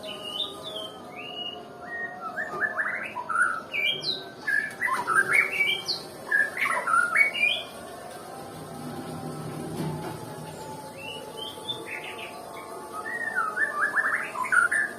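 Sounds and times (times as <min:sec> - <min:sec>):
bird singing whistled notes: 0:00.0 - 0:07.8, 0:10.9 - 0:14.9.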